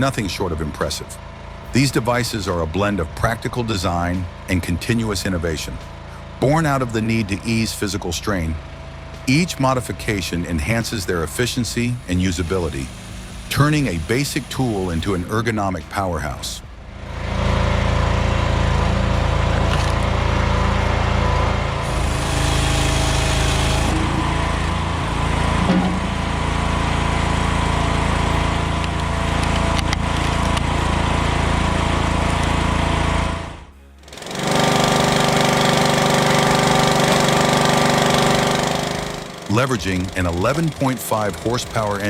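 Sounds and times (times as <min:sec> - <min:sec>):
background music: 0:00.0 - 0:22.4
machine running steadily: 0:00.0 - 0:42.0.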